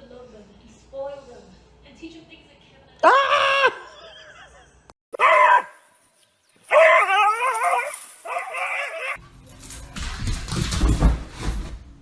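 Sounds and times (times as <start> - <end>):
dog barking and yowling: 5.2 - 5.8, 6.7 - 9.2.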